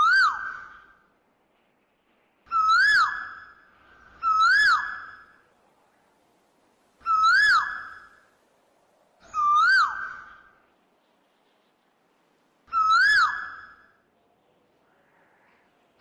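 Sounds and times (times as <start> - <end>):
bird whistling call: 2.5 - 3.6, 4.2 - 5.3, 7.0 - 8.2, 9.3 - 10.6, 12.7 - 13.8.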